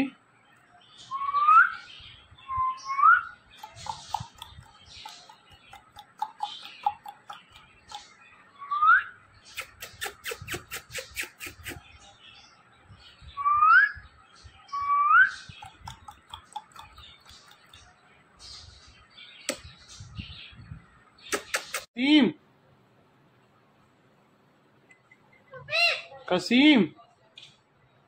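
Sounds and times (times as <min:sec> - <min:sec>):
soft chirps: 0:00.5 - 0:12.2, 0:12.9 - 0:21.9, 0:24.8 - 0:25.7.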